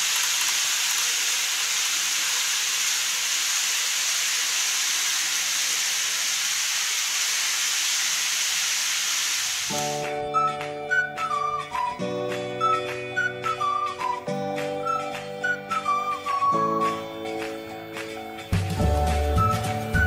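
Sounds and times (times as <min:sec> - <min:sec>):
music: 0:09.7 - 0:20.0.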